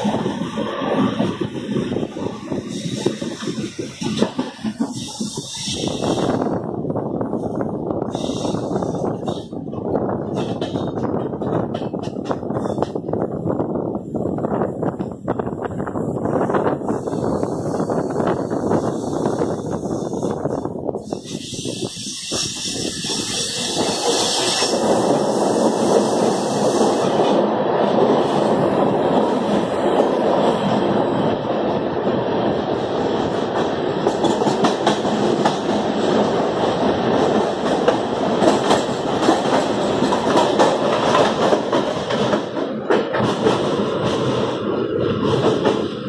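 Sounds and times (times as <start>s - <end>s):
train wheels rumbling on rails: 0.0s - 46.0s
clatter over rail joints: 1.1s - 6.4s, 8.5s - 13.6s, 37.0s - 46.0s.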